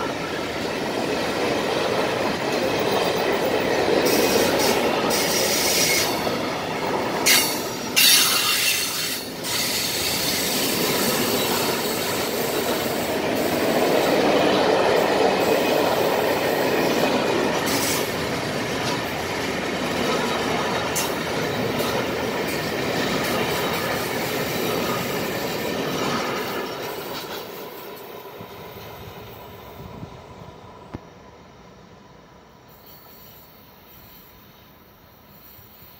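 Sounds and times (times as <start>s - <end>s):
train wheels rumbling on rail: 0.0s - 35.9s.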